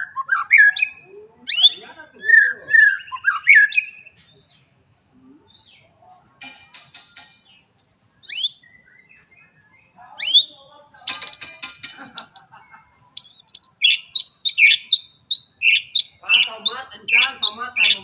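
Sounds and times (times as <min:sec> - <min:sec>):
bird whistles: 0:00.0 - 0:04.1, 0:08.2 - 0:10.5, 0:13.2 - 0:18.0
bird harsh rattle: 0:06.4 - 0:07.5, 0:11.1 - 0:12.4.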